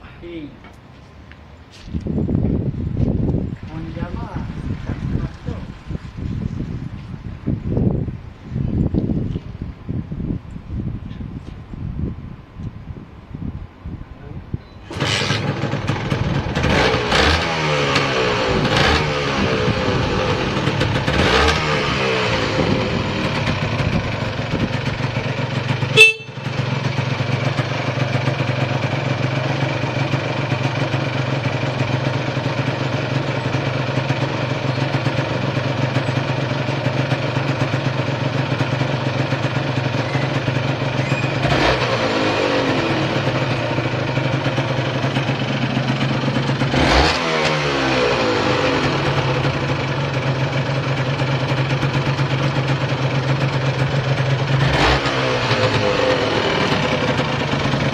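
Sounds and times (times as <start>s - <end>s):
engine blipped: 14.8s - 28.8s, 33.0s - 57.9s
motorcycle engine idling: 14.9s - 57.9s.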